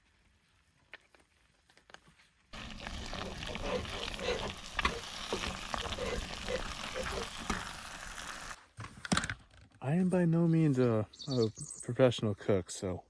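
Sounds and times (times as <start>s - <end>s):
sauce sizzling and bubbling: 2.5s - 8.6s.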